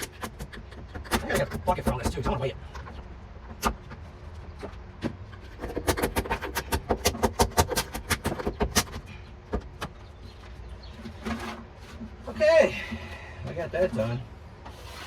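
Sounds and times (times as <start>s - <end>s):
scraper knocking on sheet metal: 5.6s - 8.9s.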